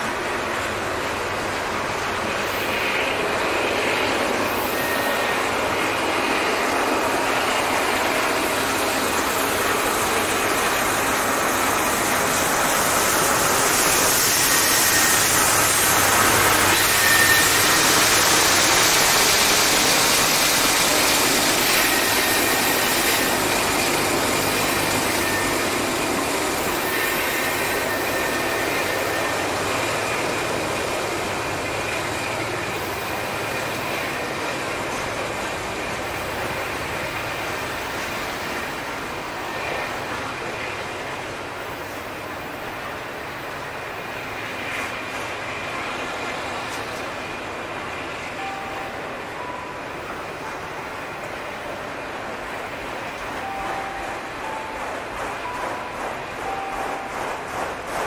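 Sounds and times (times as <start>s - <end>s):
train wheels rumbling on rail: 0.0s - 58.0s
faint high squeals: 4.5s - 6.4s, 13.0s - 18.4s.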